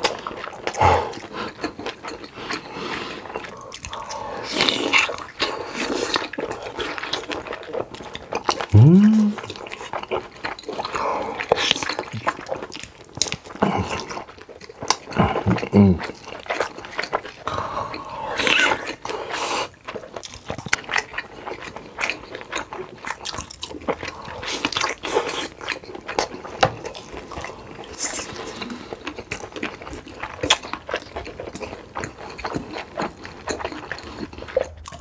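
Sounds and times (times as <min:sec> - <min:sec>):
biting and chewing sausages: 0:00.0 - 0:35.0.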